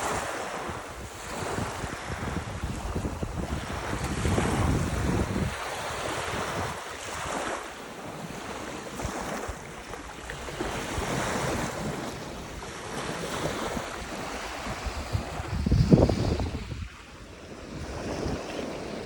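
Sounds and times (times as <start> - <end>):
ocean surf washing in: 0.0 - 9.7
wind rumbling on microphone: 0.0 - 19.0.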